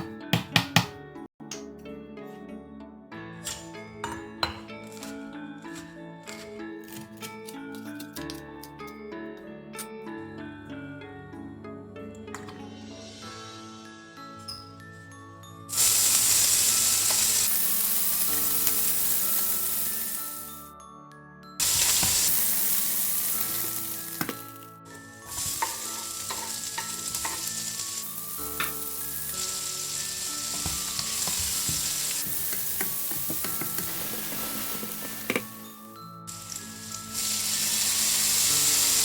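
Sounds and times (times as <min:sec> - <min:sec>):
food sizzling in hot oil: 0:15.7 - 0:20.6, 0:21.6 - 0:39.0.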